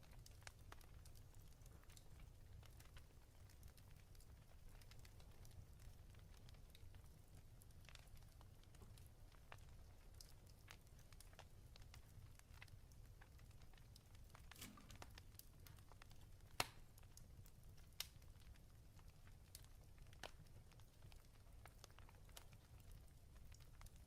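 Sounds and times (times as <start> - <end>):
fire crackling in a fireplace: 0.0 - 24.0.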